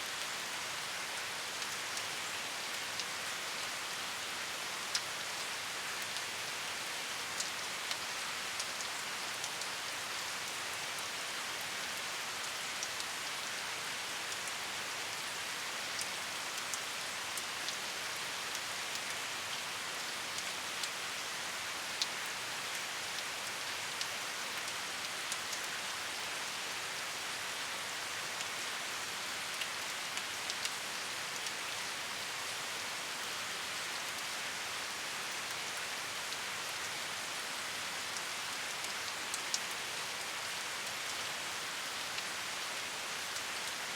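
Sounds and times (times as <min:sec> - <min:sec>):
steady rain hiss: 0:00.0 - 0:43.9.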